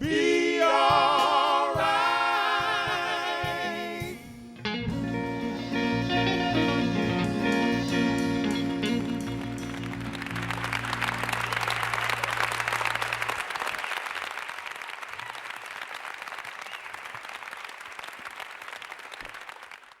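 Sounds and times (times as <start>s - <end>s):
band holding low note: 4.6s - 13.3s
audience applauding: 8.3s - 20.0s.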